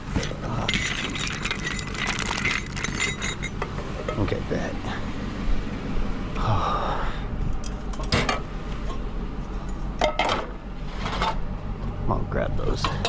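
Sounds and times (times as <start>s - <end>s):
steady low hum: 0.0s - 13.0s
metal and glass items clinking: 0.2s - 3.7s.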